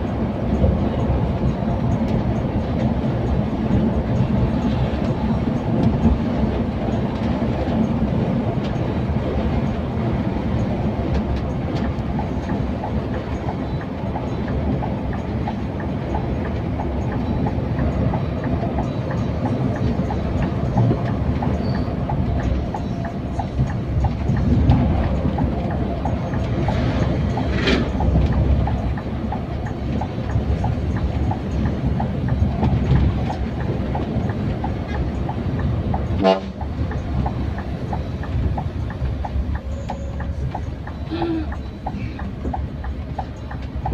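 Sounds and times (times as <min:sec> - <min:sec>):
coach engine and road rumble: 0:00.0 - 0:43.9
light ticks: 0:10.5 - 0:43.9.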